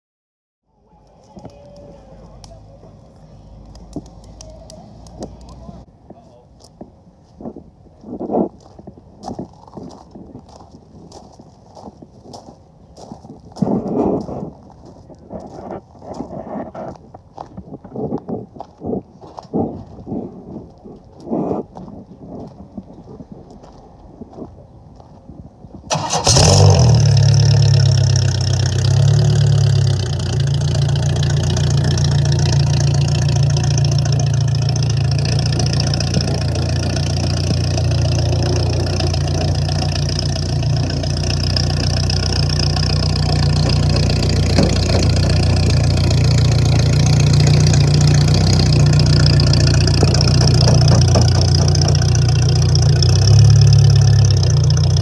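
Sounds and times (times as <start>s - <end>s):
car engine starting and idling: 25.9s - 55.0s.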